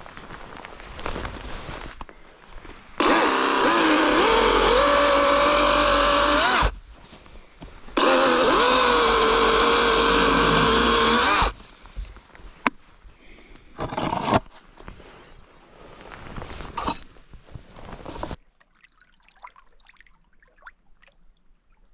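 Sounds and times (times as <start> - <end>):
electric saw cutting wood: 3.0 - 6.8, 8.0 - 11.6.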